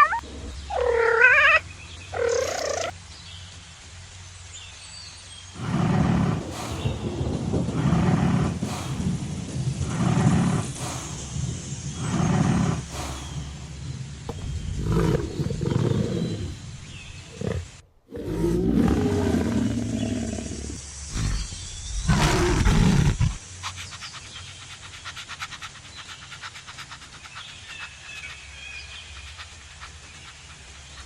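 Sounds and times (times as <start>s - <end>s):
rapid even ticks: 5.6s - 16.6s
lion roaring and grunting: 5.6s - 23.4s.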